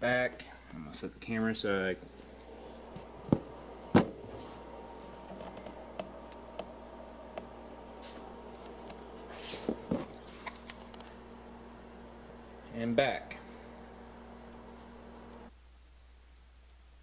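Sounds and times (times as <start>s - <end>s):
low hum: 2.0s - 15.5s
dull thumps: 2.9s - 4.6s
handling knocks: 3.0s - 4.4s.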